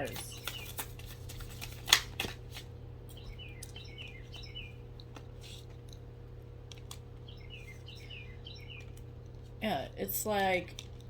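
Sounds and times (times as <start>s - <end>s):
steady low hum: 0.0s - 11.0s
small bird chirping: 3.1s - 4.9s, 7.2s - 9.1s.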